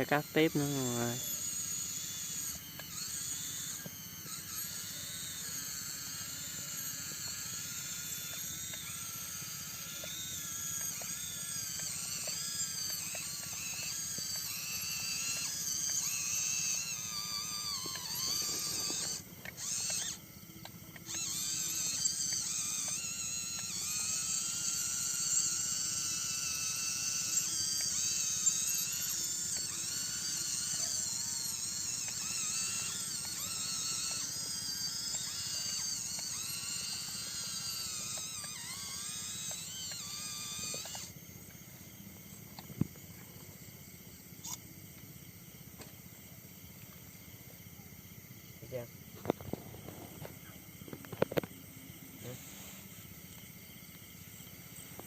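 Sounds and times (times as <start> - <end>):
insects trilling and chirping: 0.0 - 55.0.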